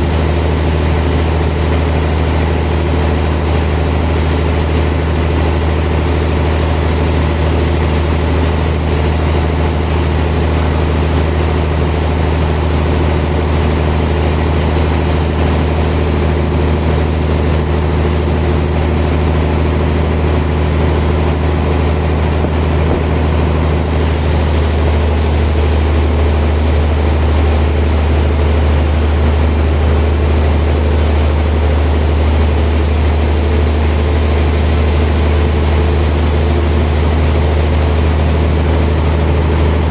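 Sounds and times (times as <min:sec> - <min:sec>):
sawmill machinery droning: 0:00.0 - 0:39.9
high hiss: 0:23.6 - 0:38.4.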